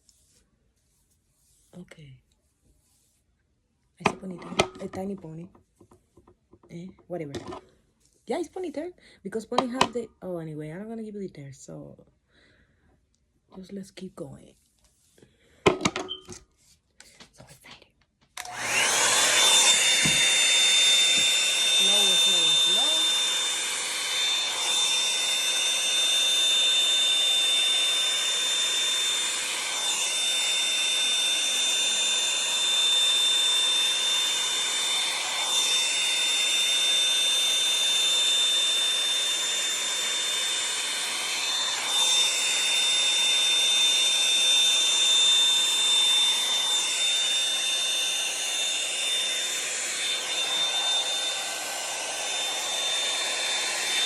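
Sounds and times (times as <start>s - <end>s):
hair dryer brush whining: 4.0s - 6.6s, 18.4s - 54.0s.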